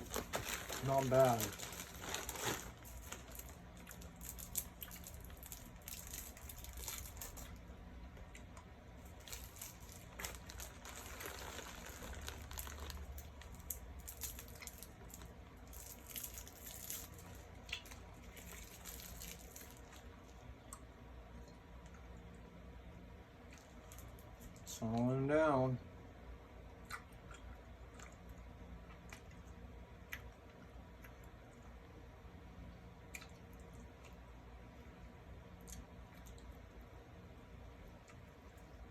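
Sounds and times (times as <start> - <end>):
candy wrappers crinkling: 0.0 - 7.6, 9.0 - 20.4
candy being chewed: 0.0 - 22.3, 23.4 - 25.1, 26.8 - 31.8, 33.0 - 36.9.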